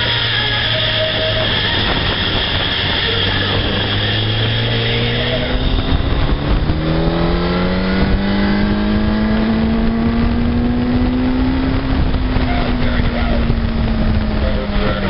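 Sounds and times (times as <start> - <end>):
motorcycle engine accelerating: 0.0 - 15.0
wind rush: 0.0 - 15.0.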